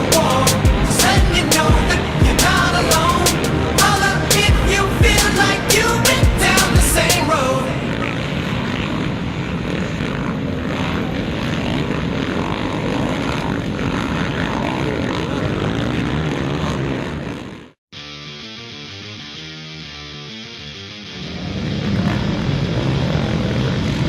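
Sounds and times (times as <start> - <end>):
motocross bike engine running: 0.0 - 24.0.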